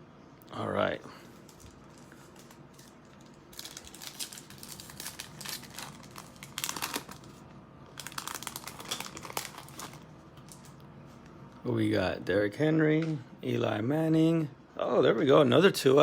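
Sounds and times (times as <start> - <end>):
plastic wrapper crinkling: 1.4 - 10.8.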